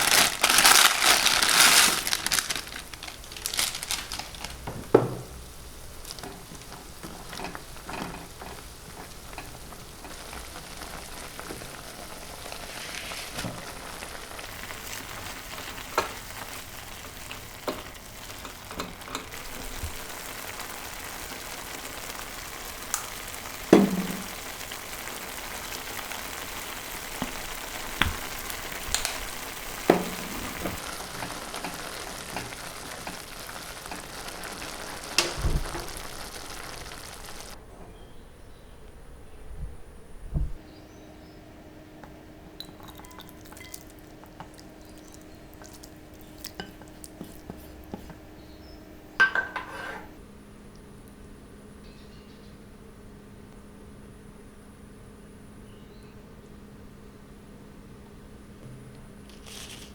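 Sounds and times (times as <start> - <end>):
food sizzling in a frying pan: 0.0 - 37.6, 42.6 - 50.2, 59.3 - 59.9
utensil knocking against pan: 23.7 - 24.3.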